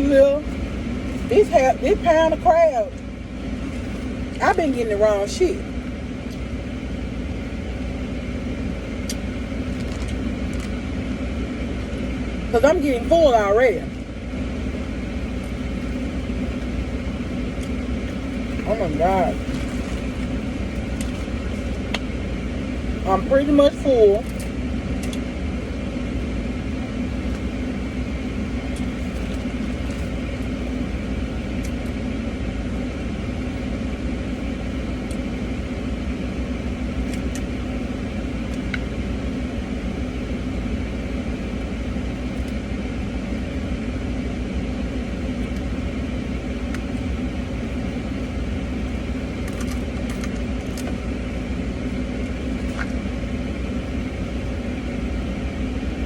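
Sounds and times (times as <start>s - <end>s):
car engine hum from cabin: 0.0s - 56.0s.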